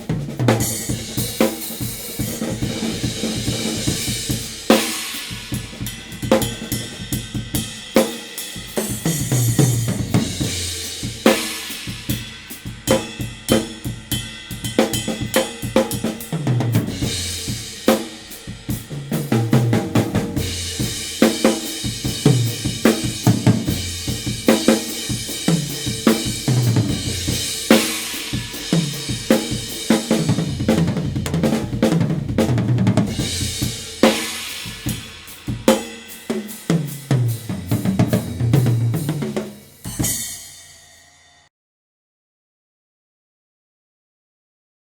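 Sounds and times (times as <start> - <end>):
kick and snare drums: 0.0 - 40.6.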